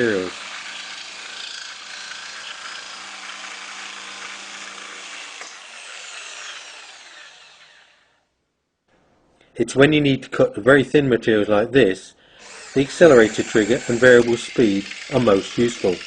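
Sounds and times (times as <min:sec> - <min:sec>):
jigsaw cutting: 0:00.0 - 0:08.2, 0:12.4 - 0:16.0
saw motor winding down: 0:00.0 - 0:08.2, 0:12.4 - 0:16.0.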